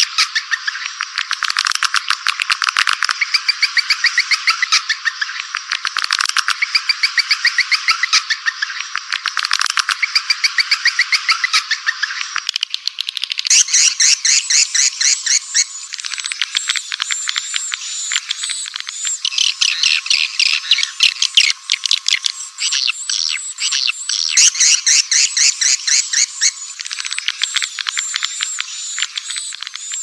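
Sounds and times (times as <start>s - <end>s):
swiftlets twittering: 13.5s - 30.0s.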